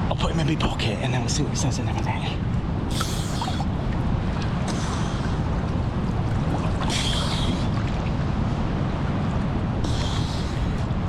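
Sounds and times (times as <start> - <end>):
steady low rumble: 0.0 - 11.0
sea water splashing: 2.5 - 11.0.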